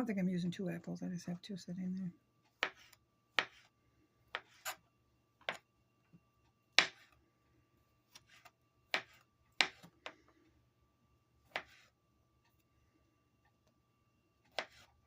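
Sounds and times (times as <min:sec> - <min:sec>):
knife striking cutting board: 0:02.6 - 0:03.7, 0:06.8 - 0:07.1.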